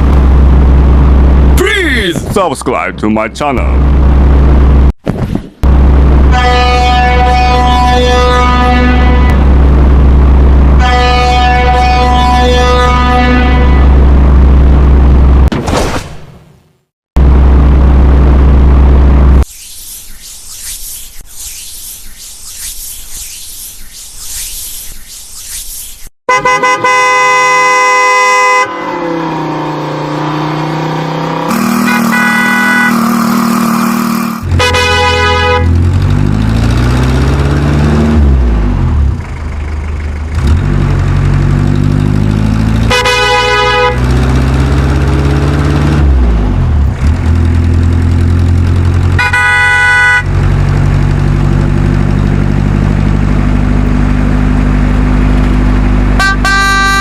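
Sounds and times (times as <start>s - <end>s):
truck horn: 6.2s - 9.5s, 10.7s - 14.2s, 26.3s - 29.3s, 31.5s - 35.8s, 42.8s - 45.1s, 49.1s - 50.4s, 56.0s - 57.0s
truck engine revving: 26.9s - 57.0s.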